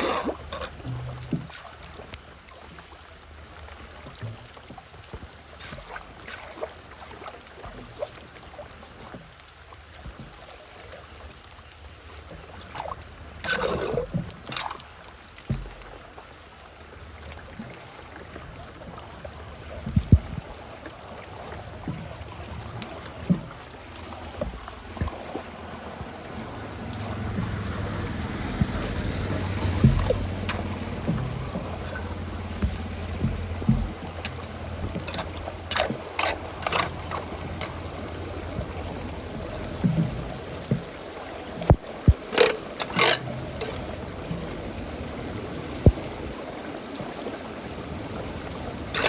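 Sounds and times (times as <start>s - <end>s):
floodwater sloshing and trickling: 0.0s - 49.0s
water splash: 0.0s - 49.0s
sharp knocks: 29.6s - 32.0s, 32.6s - 34.1s.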